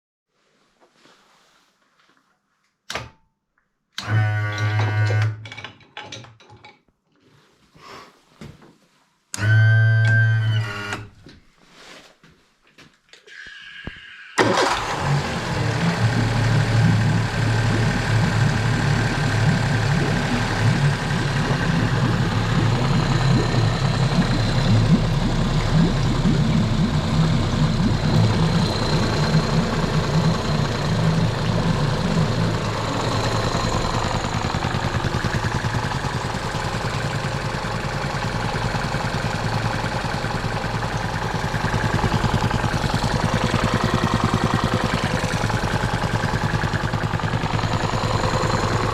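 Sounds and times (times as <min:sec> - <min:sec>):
outboard motor idling: 0:14.4 - 0:48.9.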